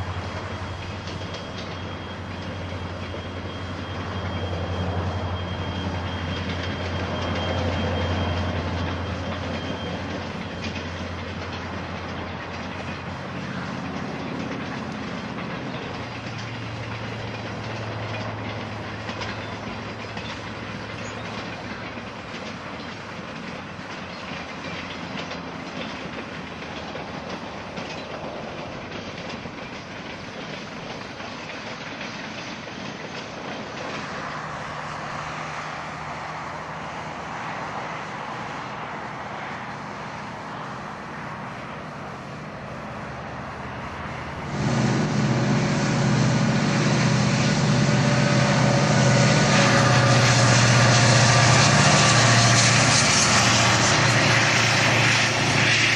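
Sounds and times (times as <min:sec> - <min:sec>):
wheels clicking over rail joints: 0:00.0 - 0:44.6
locomotive engine drone: 0:00.0 - 0:55.9
train wheels rumbling on rails: 0:00.0 - 0:55.9.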